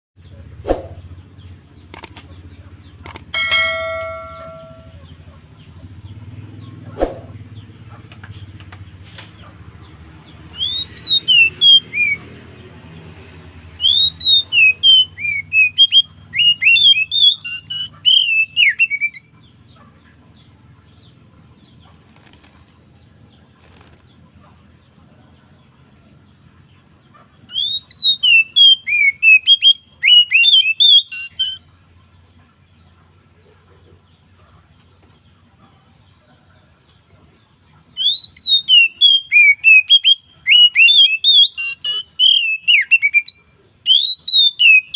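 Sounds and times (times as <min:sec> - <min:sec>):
low background hum: 0:00.2 - 0:11.3
pitched ringing tone: 0:03.3 - 0:05.0
bird singing whistled phrases: 0:10.6 - 0:12.2, 0:13.8 - 0:19.4, 0:27.5 - 0:31.6, 0:38.0 - 0:44.9.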